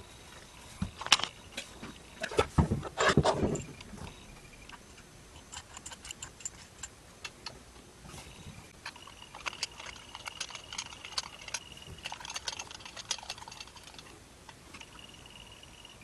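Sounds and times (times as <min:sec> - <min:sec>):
faint high whine: 0:00.0 - 0:06.2, 0:07.0 - 0:16.0
small metal parts clicking: 0:05.4 - 0:07.6, 0:08.8 - 0:16.0.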